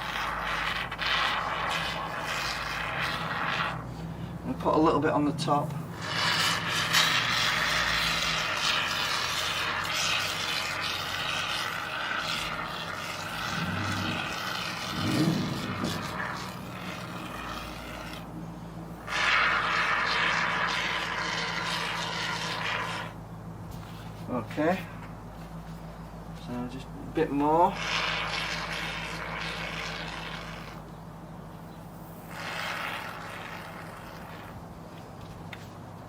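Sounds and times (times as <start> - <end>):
expanding foam can spraying: 0.0 - 4.2, 5.7 - 24.2, 27.6 - 30.9, 32.0 - 34.7.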